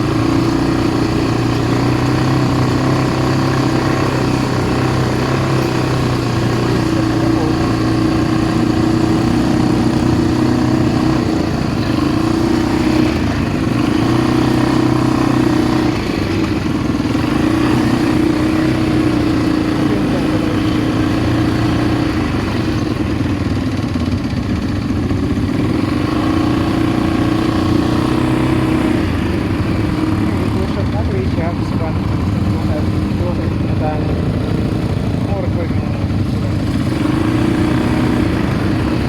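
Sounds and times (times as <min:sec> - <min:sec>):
quad bike engine running: 0:00.0 - 0:39.0.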